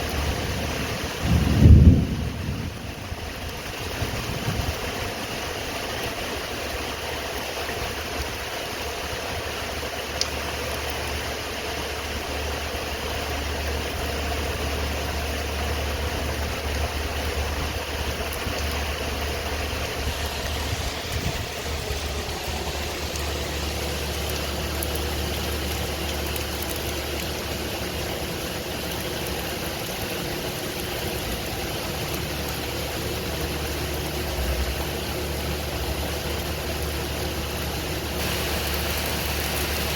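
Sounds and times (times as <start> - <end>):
car engine humming: 0.0 - 39.9
rain hissing: 0.0 - 39.9.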